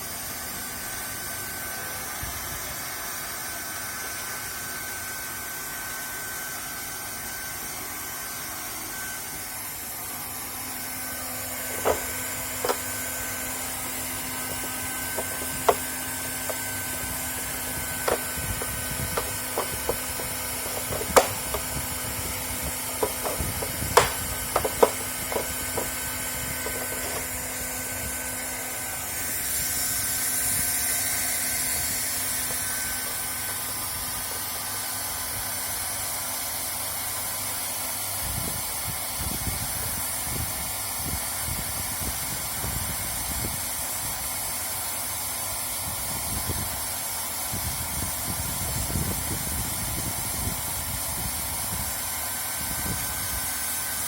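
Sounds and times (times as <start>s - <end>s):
hot-air welder hissing: 9.4s - 37.8s
sharp clicks and knocks: 11.6s - 22.0s, 22.6s - 27.4s.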